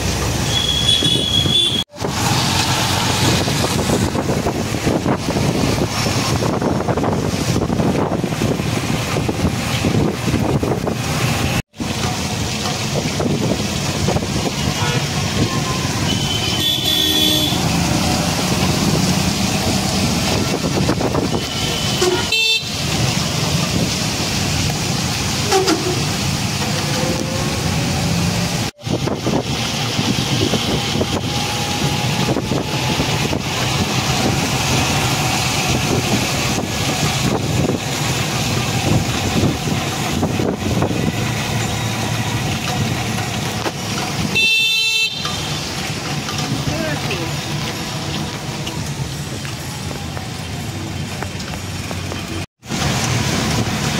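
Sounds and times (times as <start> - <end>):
road traffic noise: 0.0 - 53.9
vehicle horns tooting: 0.4 - 2.0, 14.6 - 17.8, 21.2 - 22.9, 25.4 - 26.1, 44.3 - 45.7.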